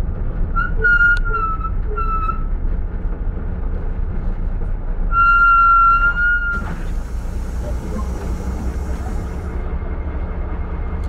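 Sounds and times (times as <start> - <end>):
low traffic rumble: 0.0 - 11.0
brake pads squealing: 5.9 - 9.6.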